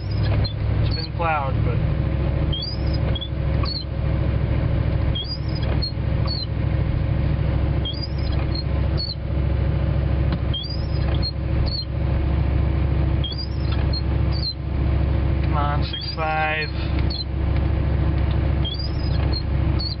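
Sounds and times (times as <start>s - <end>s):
windshield wipers squeaking: 0.0s - 1.5s, 2.4s - 4.0s, 4.8s - 6.6s, 7.8s - 9.3s, 10.2s - 12.0s, 13.1s - 14.7s, 15.4s - 20.0s
vehicle engine and tyres droning: 0.0s - 20.0s.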